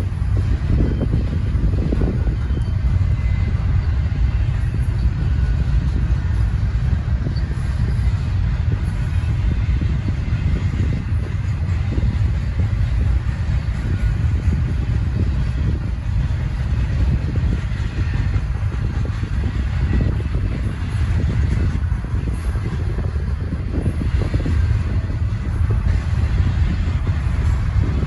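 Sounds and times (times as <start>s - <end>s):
freight cars rumbling on rails: 0.0s - 28.0s.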